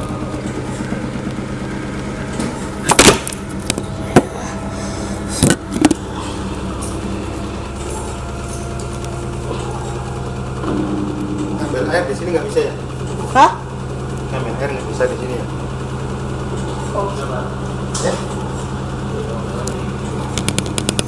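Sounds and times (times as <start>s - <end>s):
washing machine motor hum: 0.0s - 21.0s
loud knocks and clatters: 10.4s - 14.4s, 20.3s - 21.0s.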